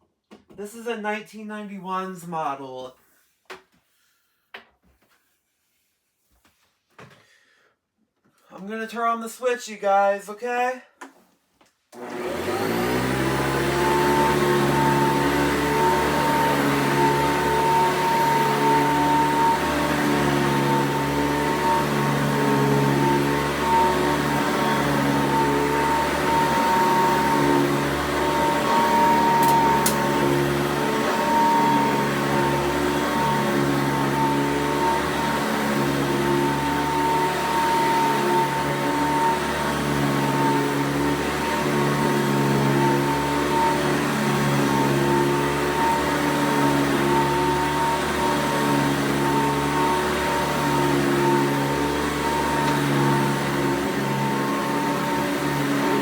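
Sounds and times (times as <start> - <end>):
upright vacuum cleaner running: 12.0 - 56.0.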